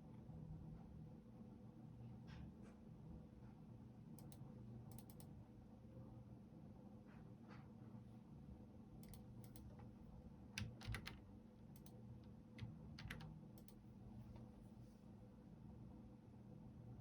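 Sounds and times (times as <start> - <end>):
faint steady hum: 0.0 - 17.0
computer keyboard keystrokes: 4.2 - 5.3, 9.0 - 10.0, 10.6 - 13.8.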